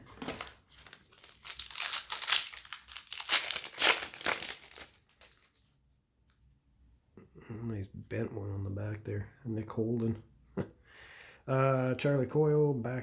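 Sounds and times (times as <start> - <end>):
foil wrapper tearing and crinkling: 0.3 - 5.6.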